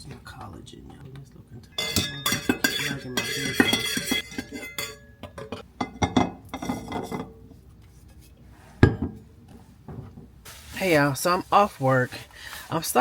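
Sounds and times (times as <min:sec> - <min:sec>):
cutlery and dishware clinking: 0:01.6 - 0:07.5.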